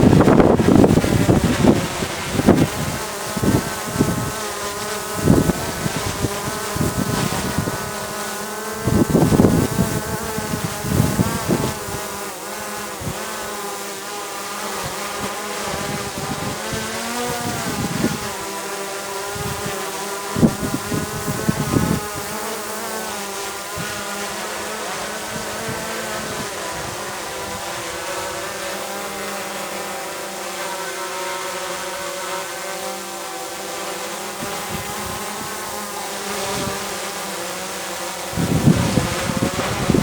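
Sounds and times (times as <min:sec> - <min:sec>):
wind buffeting microphone: 0:00.0 - 0:08.2, 0:08.8 - 0:12.2, 0:14.8 - 0:18.4, 0:19.3 - 0:22.5, 0:24.9 - 0:28.5, 0:34.4 - 0:36.9, 0:38.3 - 0:40.0
drone propeller buzzing: 0:00.0 - 0:40.0.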